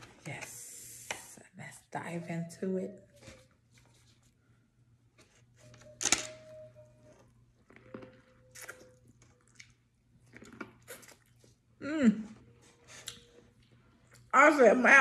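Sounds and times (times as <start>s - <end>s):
chewing corn on the cob: 7.2s - 11.7s.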